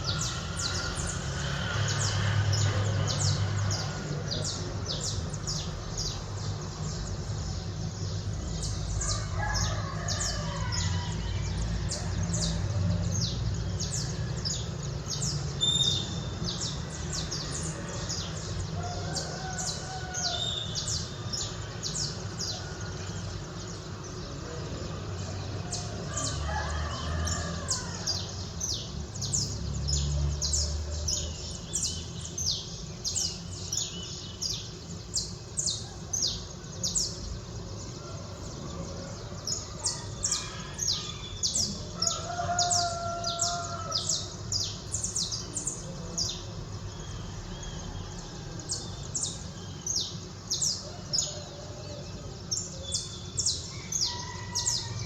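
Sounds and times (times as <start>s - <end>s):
small birds chirping: 0.0s - 55.0s
rooster crowing: 9.0s - 13.1s, 18.8s - 21.4s, 25.6s - 29.4s, 37.9s - 45.3s, 50.6s - 52.3s, 53.4s - 55.0s.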